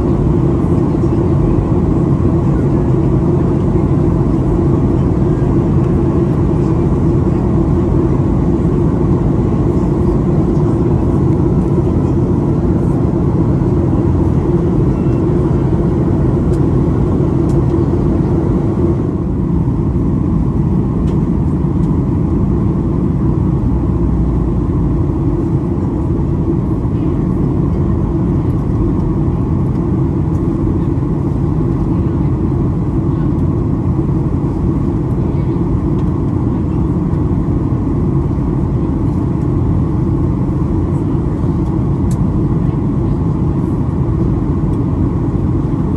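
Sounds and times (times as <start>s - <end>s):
airplane cabin roar: 0.0s - 45.9s.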